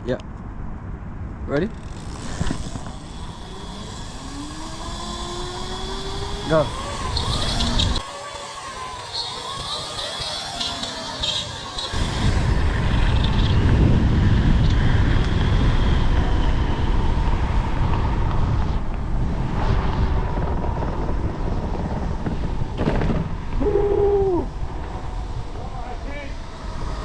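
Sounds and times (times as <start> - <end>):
wind buffeting microphone: 0.0 - 27.0
faint high whine: 1.4 - 22.8.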